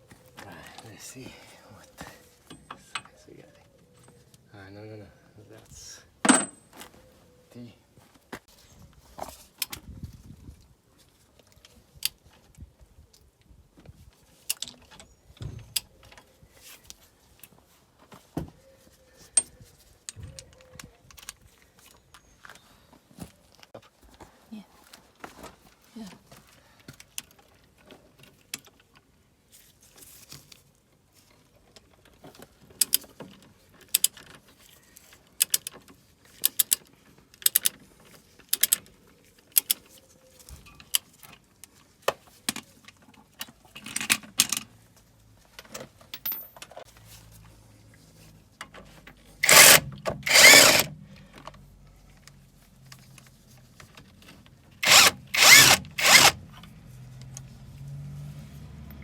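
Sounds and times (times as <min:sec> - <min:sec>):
sharp clicks of fastener: 0:35.4 - 0:35.7, 0:36.4 - 0:36.8, 0:37.4 - 0:37.8, 0:38.5 - 0:38.8, 0:39.5 - 0:39.8, 0:49.4 - 0:51.0, 0:54.8 - 0:56.4
power tool bursts: 0:49.4 - 0:51.0, 0:54.8 - 0:56.4.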